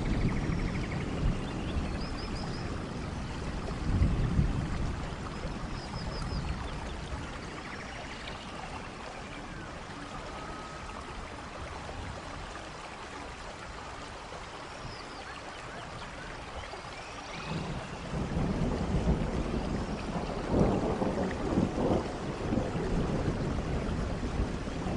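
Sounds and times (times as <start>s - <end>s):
low rumble like thunder: 0.0s - 12.8s, 17.2s - 24.9s
waterfall rushing: 4.9s - 23.1s.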